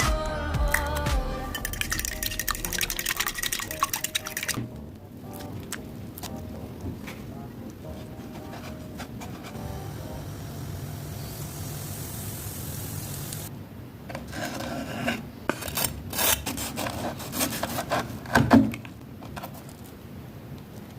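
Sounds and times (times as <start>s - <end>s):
steady hiss: 9.5s - 13.5s.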